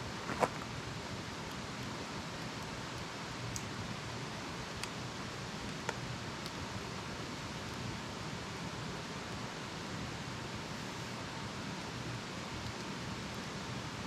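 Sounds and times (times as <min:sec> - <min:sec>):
burning wood crackling: 0:00.0 - 0:06.8
campfire hissing: 0:00.0 - 0:14.0.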